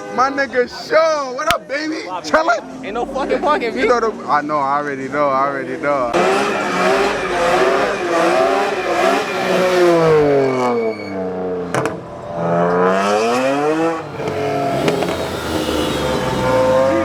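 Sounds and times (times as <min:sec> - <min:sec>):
car engine revving: 0:05.1 - 0:17.0.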